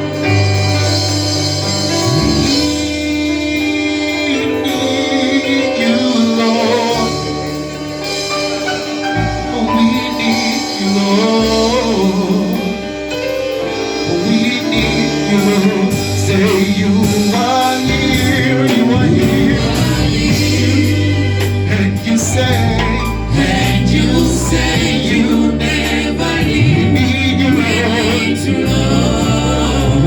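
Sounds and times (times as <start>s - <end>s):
band playing bass and keyboard: 0.0s - 30.0s.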